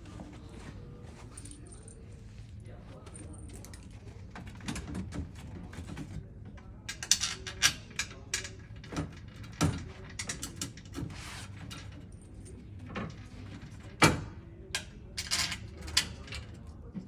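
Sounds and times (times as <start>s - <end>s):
metal hardware clicks and knocks: 6.9s - 11.0s.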